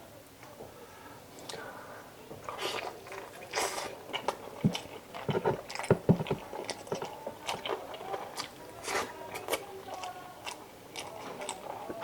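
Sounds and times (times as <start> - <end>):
person chewing food: 2.3 - 12.0.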